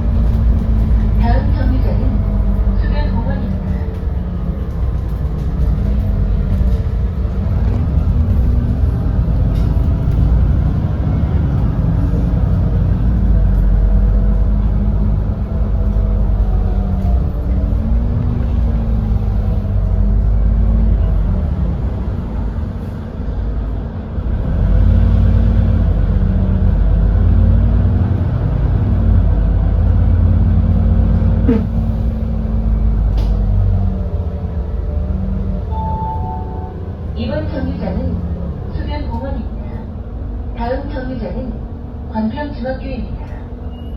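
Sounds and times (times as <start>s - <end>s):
bus engine low drone: 0.0s - 43.9s
short falling squeal: 43.6s - 43.9s.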